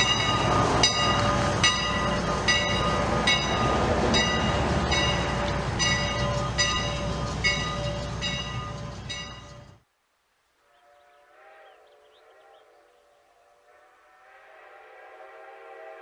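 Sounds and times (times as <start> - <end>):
locomotive bell ringing: 0.0 - 9.8
steam locomotive running: 0.0 - 9.8
birds chirping: 10.6 - 13.8
distant steam whistle: 10.7 - 16.0.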